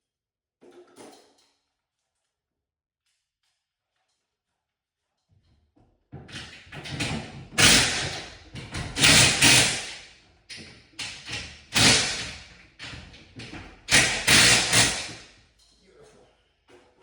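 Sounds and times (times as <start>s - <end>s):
loud knocks and clatters: 6.1s - 15.4s.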